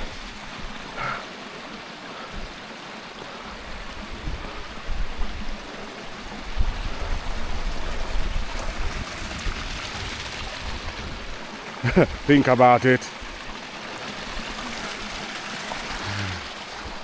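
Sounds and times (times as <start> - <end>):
stream rushing over rocks: 0.0 - 17.0
wind buffeting microphone: 3.6 - 12.3.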